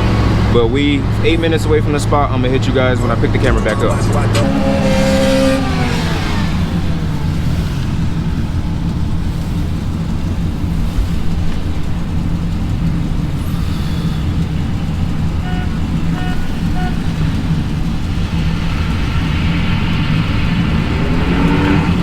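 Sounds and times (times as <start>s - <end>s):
car engine cruising drone: 0.0s - 22.0s
road noise: 0.0s - 22.0s.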